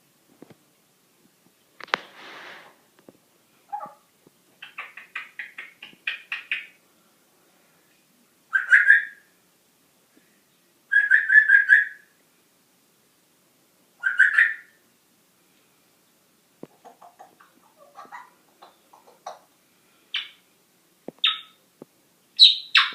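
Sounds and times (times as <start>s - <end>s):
pet animal chirping: 3.7s - 6.8s, 8.5s - 9.2s, 10.9s - 12.1s, 14.0s - 14.8s, 16.8s - 19.4s, 20.1s - 20.4s, 21.2s - 21.6s, 22.4s - 22.9s
high trilled calls: 8.5s - 9.3s, 10.9s - 12.1s, 14.0s - 14.8s, 20.1s - 20.4s, 21.2s - 21.6s, 22.4s - 22.9s.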